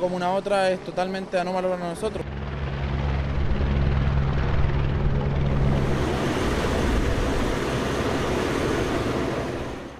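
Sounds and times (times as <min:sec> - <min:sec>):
aircraft engine drone: 0:00.0 - 0:09.9
even rushing noise: 0:03.2 - 0:09.9.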